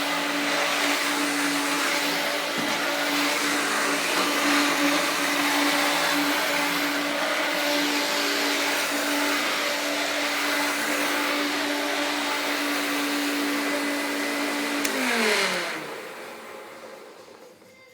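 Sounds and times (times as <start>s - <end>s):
vacuum cleaner running: 0.0s - 17.9s
vacuum cleaner switch click: 14.7s - 15.3s.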